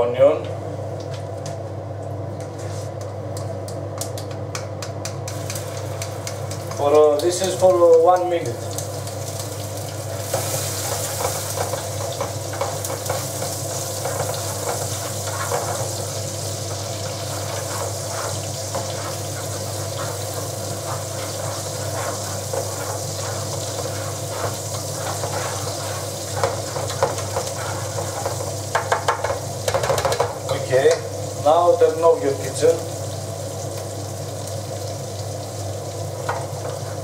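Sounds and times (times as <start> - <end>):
onion sizzling in oil: 5.2 - 37.0
spatula scraping metal pan: 17.3 - 28.4.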